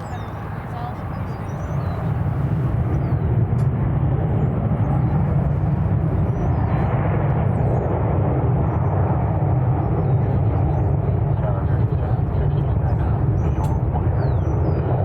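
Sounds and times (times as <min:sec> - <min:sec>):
faint bird chirps: 0:00.0 - 0:03.3
jet engines rumbling: 0:00.0 - 0:15.0.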